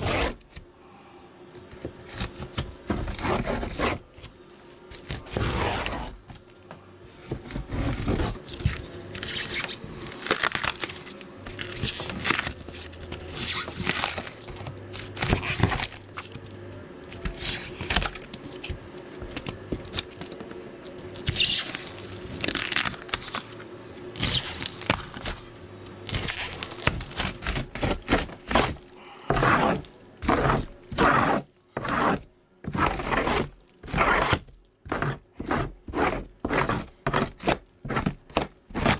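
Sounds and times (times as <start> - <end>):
scraping strokes on wood: 0.0 - 0.4, 24.2 - 38.9.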